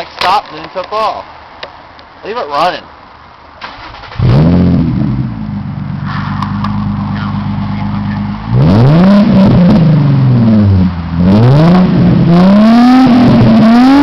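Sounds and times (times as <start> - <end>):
car engine revving and idling: 3.7 - 14.0.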